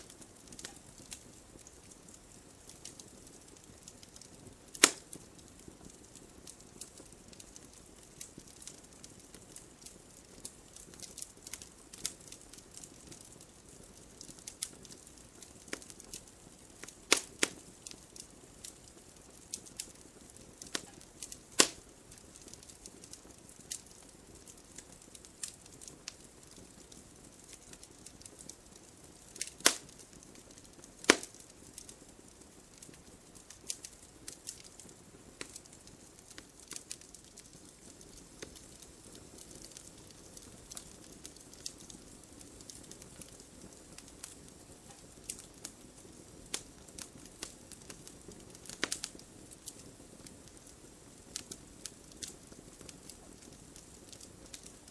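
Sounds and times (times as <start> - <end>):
fire hissing: 0.0 - 13.3, 16.8 - 26.6, 27.2 - 31.9
wood fire snapping and popping: 0.0 - 54.9.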